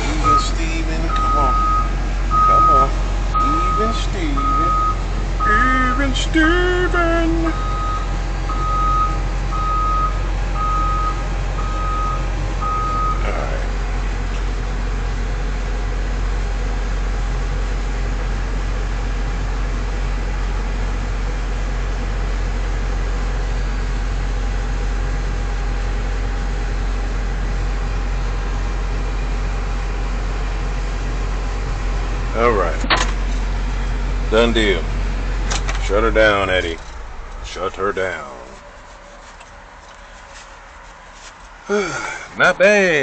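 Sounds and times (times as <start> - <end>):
excavator diesel engine running: 0.0 - 43.0
travel alarm beeps: 0.2 - 6.2, 7.5 - 13.2.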